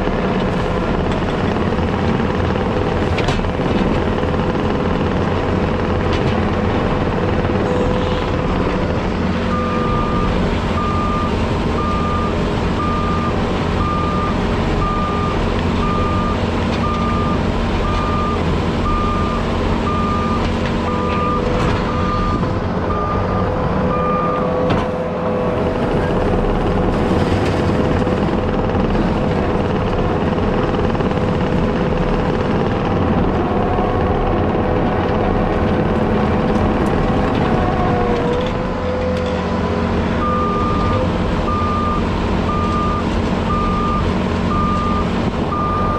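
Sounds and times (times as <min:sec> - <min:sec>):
heavy equipment engine running: 0:00.0 - 0:45.9
reversing alarm beeping: 0:08.4 - 0:24.6, 0:40.2 - 0:45.9.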